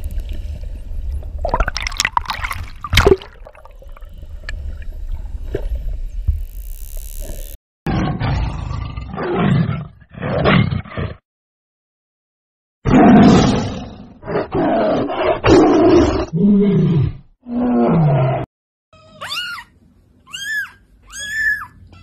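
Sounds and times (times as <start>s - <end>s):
leopard roaring and growling: 7.9s - 11.2s, 12.9s - 18.5s.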